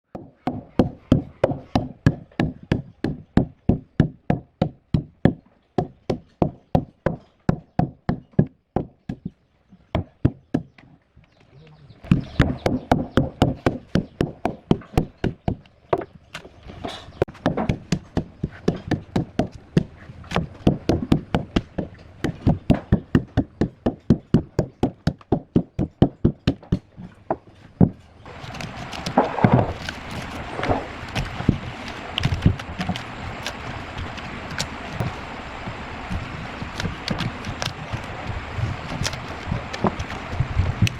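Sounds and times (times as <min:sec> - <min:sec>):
scattered thuds: 0:12.0 - 0:40.9
hand tool knocking on wood: 0:12.1 - 0:16.2, 0:17.2 - 0:28.0
steady hiss: 0:28.3 - 0:40.9.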